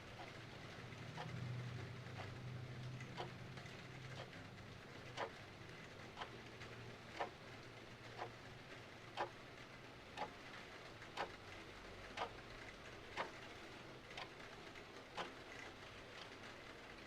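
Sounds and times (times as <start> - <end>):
faint hiss of rain: 0.0 - 17.0
clock ticking: 2.1 - 4.4, 5.1 - 5.4, 7.1 - 7.4, 8.1 - 8.4, 9.2 - 9.4, 12.1 - 12.4, 13.2 - 13.4.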